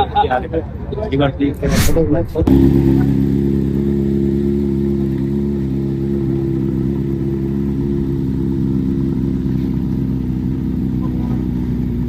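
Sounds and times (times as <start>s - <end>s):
motorcycle engine idling: 2.5s - 12.0s.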